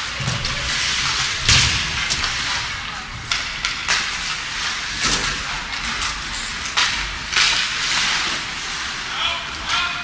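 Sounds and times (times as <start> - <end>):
hockey sticks striking puck: 0.2 - 8.8
skates scraping on ice: 0.2 - 9.0.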